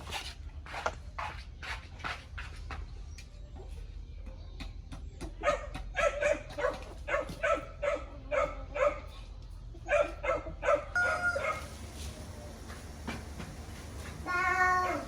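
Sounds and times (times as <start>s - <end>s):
dog barking: 5.4s - 9.2s, 9.8s - 11.7s.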